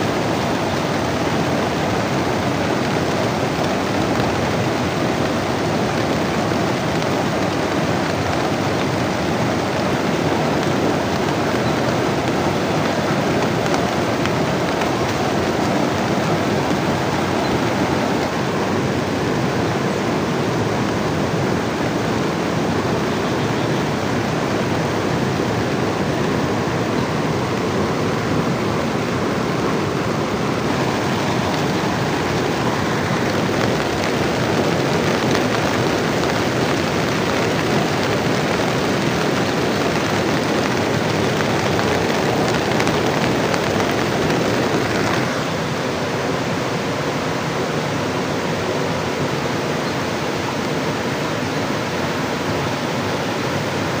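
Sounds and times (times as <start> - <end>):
heavy rain: 0.0 - 54.0
river rushing: 0.0 - 54.0.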